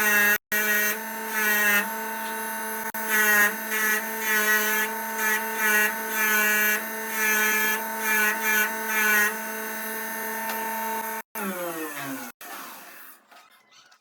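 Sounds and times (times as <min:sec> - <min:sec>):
small power tool on metal: 0:00.0 - 0:13.7.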